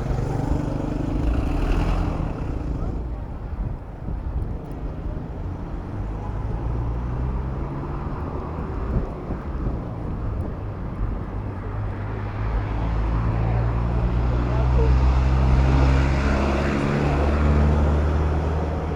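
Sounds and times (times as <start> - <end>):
motor vehicle engine humming: 0.0 - 6.8
city road traffic: 0.0 - 18.9.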